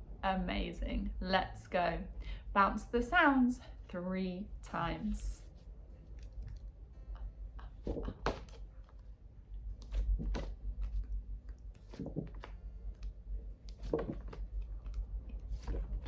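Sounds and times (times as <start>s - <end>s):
low steady hum: 0.0s - 16.0s
woman saying phonics sounds: 2.6s - 5.5s.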